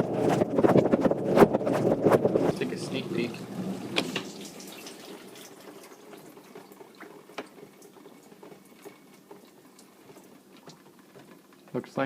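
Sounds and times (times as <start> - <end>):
water trickling and dripping: 4.1 - 11.2.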